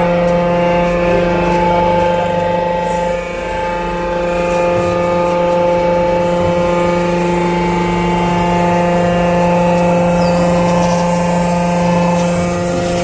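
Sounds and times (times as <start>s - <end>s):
constant whine: 0.0s - 13.0s
excavator engine running: 0.0s - 13.0s.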